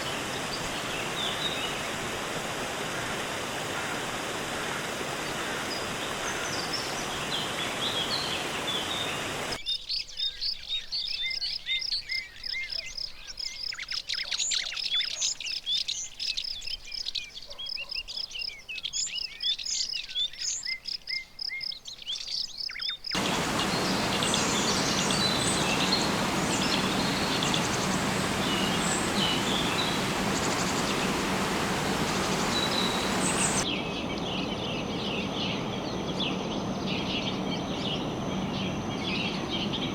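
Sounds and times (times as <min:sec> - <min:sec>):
birds chirping and calling: 0:23.2 - 0:33.6
steady rushing noise: 0:23.2 - 0:39.9.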